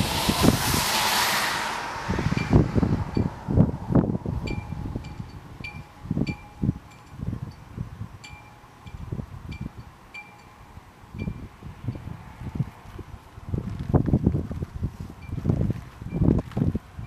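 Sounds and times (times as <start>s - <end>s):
wind buffeting microphone: 0.0s - 17.0s
wind chime ringing: 8.3s - 11.5s.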